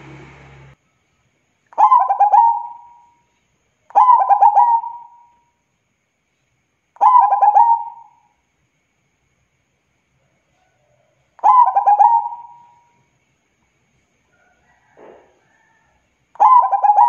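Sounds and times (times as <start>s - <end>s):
dove cooing: 1.8s - 3.0s, 3.9s - 5.3s, 7.0s - 8.1s, 11.4s - 12.8s, 16.4s - 17.0s.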